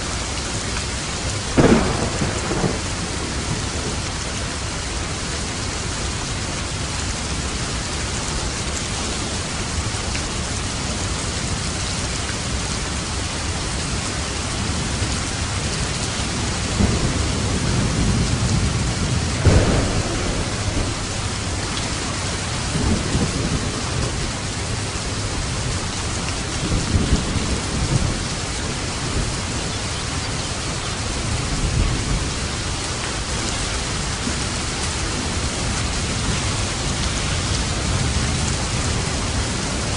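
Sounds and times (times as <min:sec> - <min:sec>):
heavy rain falling: 0:00.0 - 0:39.9
thunder rumbling: 0:01.4 - 0:05.5, 0:14.6 - 0:39.9.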